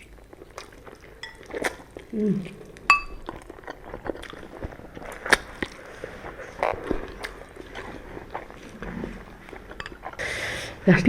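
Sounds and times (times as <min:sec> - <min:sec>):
wet mouth clicks and smacks: 0:00.0 - 0:08.6
chewing noodles: 0:00.0 - 0:10.9.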